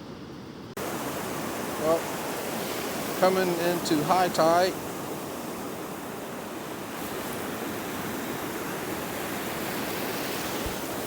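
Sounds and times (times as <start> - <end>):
ocean surf breaking: 0.7 - 11.0.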